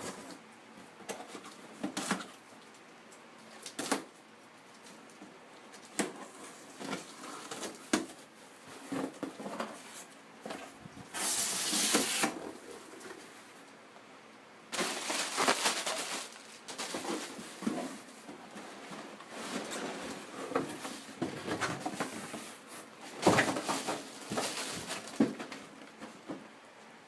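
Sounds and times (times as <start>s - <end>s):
packaging rustling: 14.7s - 18.1s, 23.2s - 25.7s.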